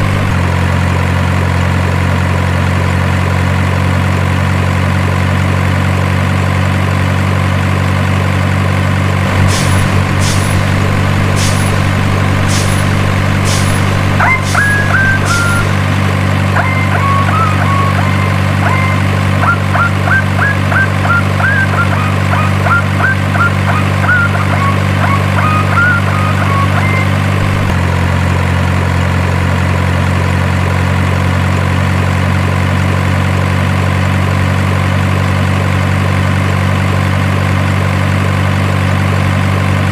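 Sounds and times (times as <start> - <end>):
truck engine idling: 0.0 - 39.9
short high chirps: 9.4 - 27.7.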